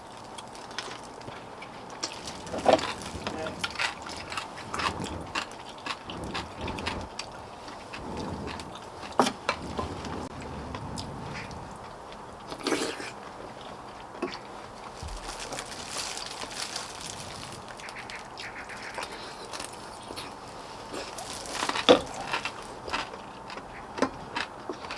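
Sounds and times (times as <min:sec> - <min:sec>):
person chewing and slurping: 0:00.0 - 0:14.6.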